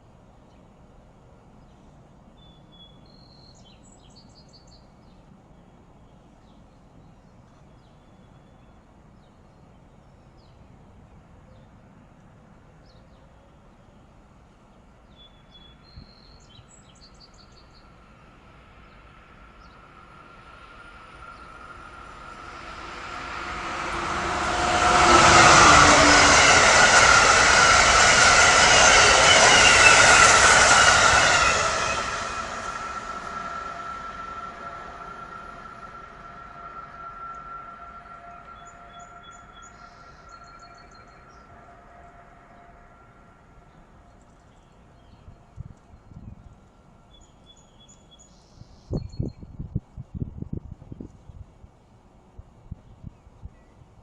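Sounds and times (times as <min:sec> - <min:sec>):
train whine: 0:16.4 - 0:47.6
electric train passing: 0:16.8 - 0:47.2.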